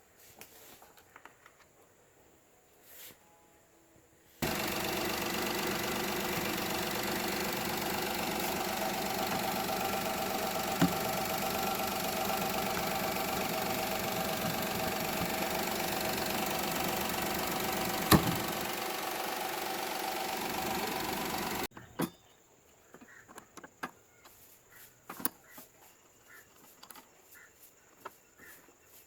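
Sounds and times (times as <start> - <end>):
car engine idling: 4.4 - 21.7.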